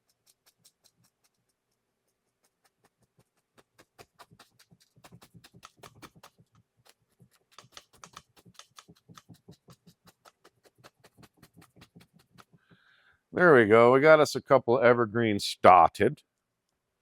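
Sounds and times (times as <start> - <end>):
paintbrush tapping on canvas: 7.5 - 12.7.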